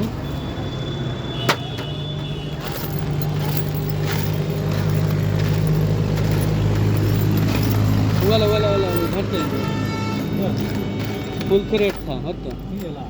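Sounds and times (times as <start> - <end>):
vehicle engine running: 2.6 - 12.0
metallic clink of a tool: 2.6 - 13.0.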